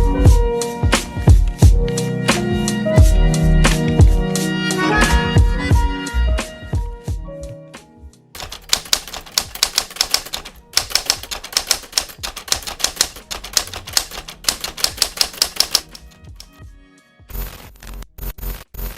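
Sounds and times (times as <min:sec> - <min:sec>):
sharp keystroke-like clicks: 0:08.4 - 0:16.6.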